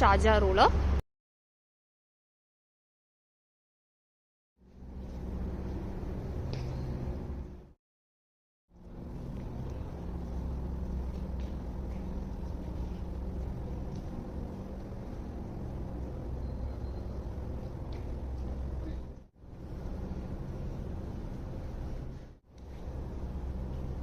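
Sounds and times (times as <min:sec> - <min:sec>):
low hum and rumble: 0:04.6 - 0:07.8, 0:08.7 - 0:24.0.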